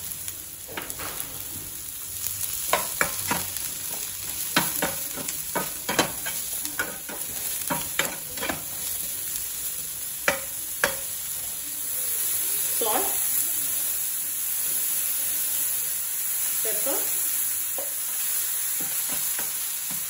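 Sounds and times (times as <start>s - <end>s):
mushrooms and onion sizzling in oil: 0.0s - 20.0s
spatula knocking and scraping pan: 2.6s - 8.9s, 10.2s - 11.1s, 18.7s - 20.0s.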